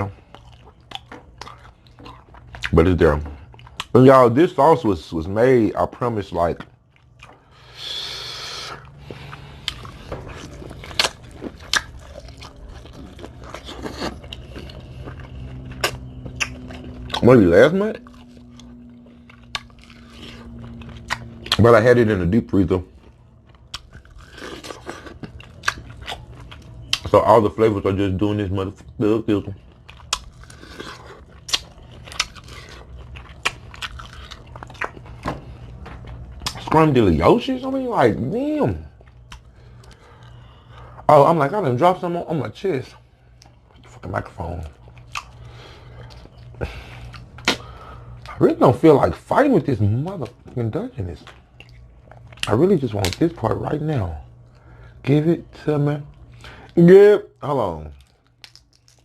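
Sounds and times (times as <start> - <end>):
crab crunching and chewing: 0.0 - 4.1, 6.4 - 27.9, 28.6 - 37.7, 42.9 - 48.5, 49.9 - 53.5, 57.8 - 59.0
sharp crab shell cracks: 58.4 - 59.0.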